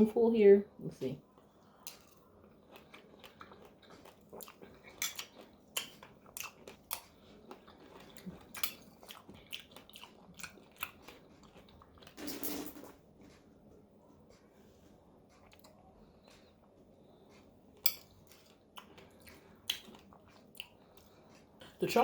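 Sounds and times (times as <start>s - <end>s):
chewing crunchy seeds: 1.4s - 12.2s, 17.8s - 21.4s.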